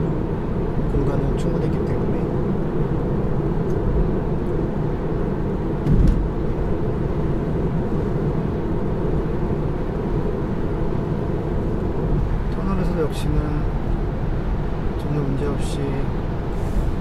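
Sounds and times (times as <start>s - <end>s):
tyre and road rumble: 3.2s - 14.9s
thump: 5.8s - 6.3s.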